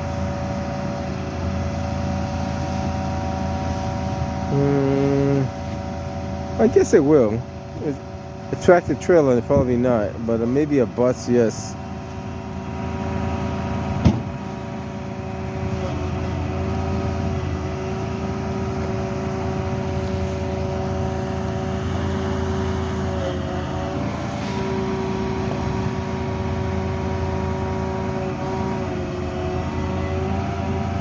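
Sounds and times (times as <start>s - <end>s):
vehicle engine running: 0.0s - 31.0s
sharp knock: 14.0s - 14.3s.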